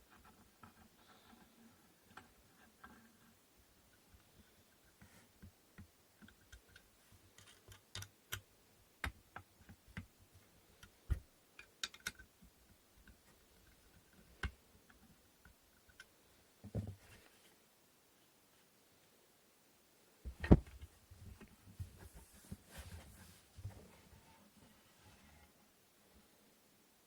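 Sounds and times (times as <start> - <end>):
wooden loom parts clicking: 5.8 - 8.4, 10.8 - 16.2.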